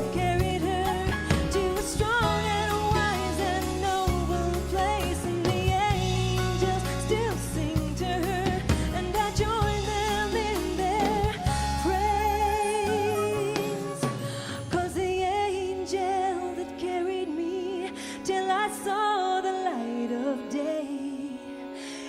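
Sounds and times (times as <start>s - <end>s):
held bass notes: 0.0s - 13.6s.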